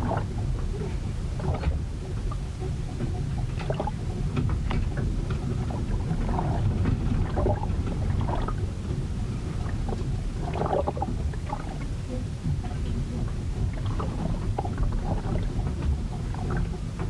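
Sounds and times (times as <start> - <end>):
water splashing: 0.0 - 2.4, 4.7 - 17.0
low rumble: 0.0 - 17.0.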